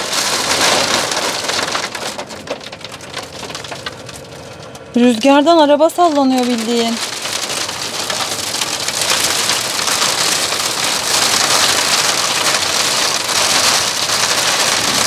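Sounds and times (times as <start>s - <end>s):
heavy rain on a vehicle roof: 0.0s - 15.0s.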